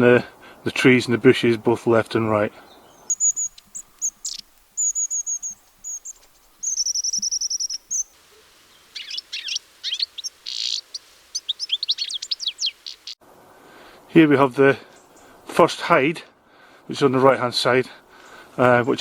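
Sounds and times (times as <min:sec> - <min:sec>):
songbirds singing: 0:01.1 - 0:13.2, 0:14.9 - 0:15.5, 0:18.2 - 0:19.0.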